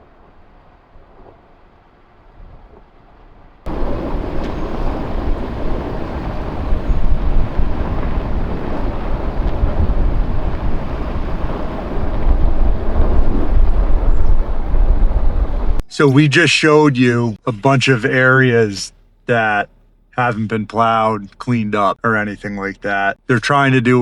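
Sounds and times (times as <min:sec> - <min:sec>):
wind rumbling on microphone: 0:00.0 - 0:15.9.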